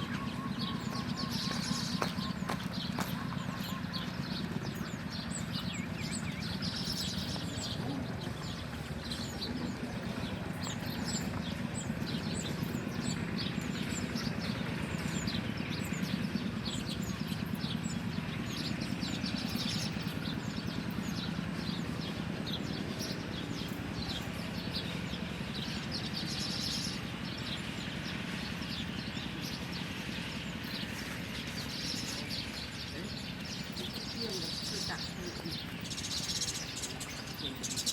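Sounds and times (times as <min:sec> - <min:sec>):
small birds chirping: 0:00.0 - 0:37.9.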